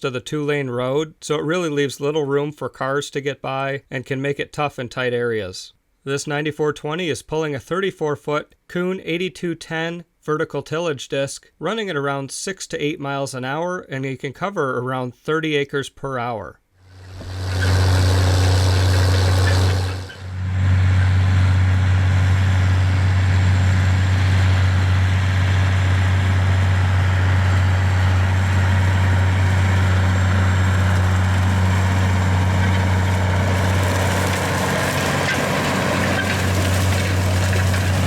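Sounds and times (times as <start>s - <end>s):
tractor diesel engine under load: 16.8s - 38.0s
mechanical noise: 16.9s - 21.2s.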